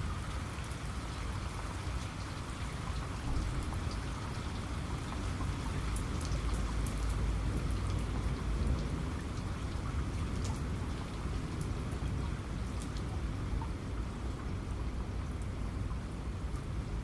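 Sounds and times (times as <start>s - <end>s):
raindrops ticking close by: 0.0s - 17.0s
steady rain falling: 0.0s - 17.0s.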